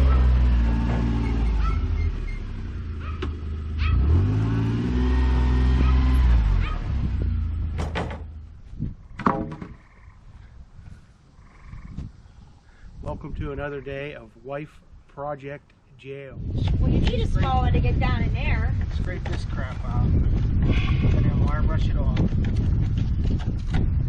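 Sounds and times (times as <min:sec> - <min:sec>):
sharp knocks: 0:07.8 - 0:08.3, 0:09.2 - 0:09.8.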